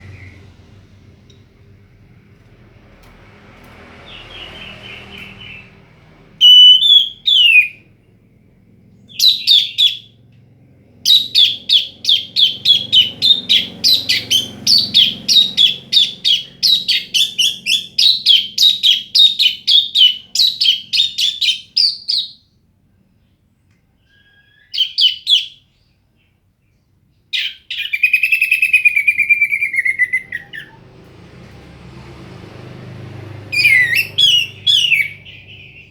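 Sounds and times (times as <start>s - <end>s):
thrush singing: 28.4s - 35.9s.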